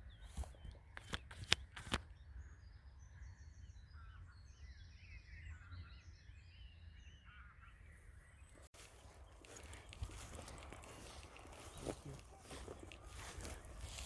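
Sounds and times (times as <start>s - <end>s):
birds chirping and trilling: 0.0s - 14.0s
sharp click: 1.0s - 2.1s.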